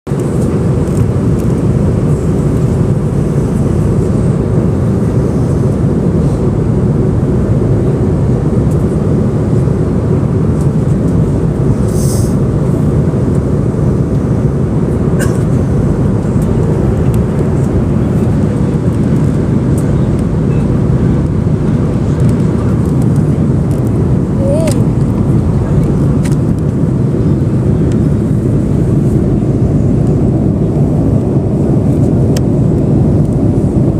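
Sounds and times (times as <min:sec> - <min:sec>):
jet engine cabin rumble: 0:00.1 - 0:33.9
brief high hiss: 0:11.9 - 0:12.4.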